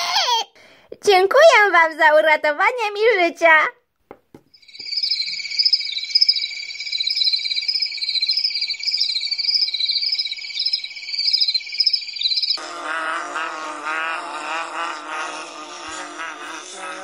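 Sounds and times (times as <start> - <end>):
insects trilling steadily: 4.5 - 17.0
pulsing insect chirp: 4.5 - 17.0.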